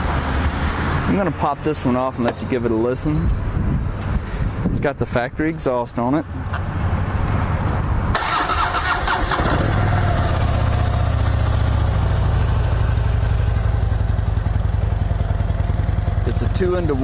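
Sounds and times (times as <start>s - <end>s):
motorcycle engine starting and idling: 8.1s - 17.0s.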